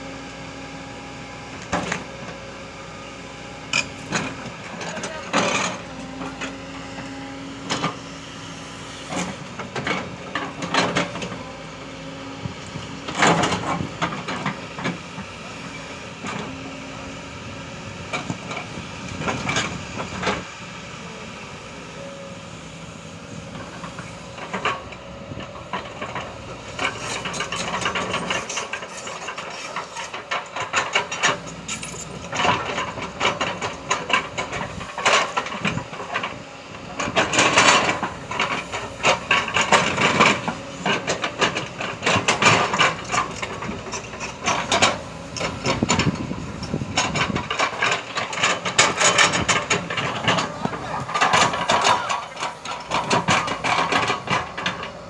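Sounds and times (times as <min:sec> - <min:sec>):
excavator engine running: 0:00.0 - 0:55.0.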